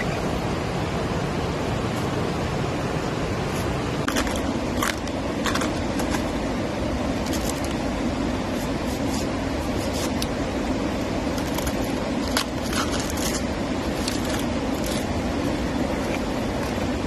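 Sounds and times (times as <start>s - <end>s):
rain and running water: 0.0s - 17.0s
light clicks and scrapes: 8.5s - 10.4s, 11.3s - 15.2s.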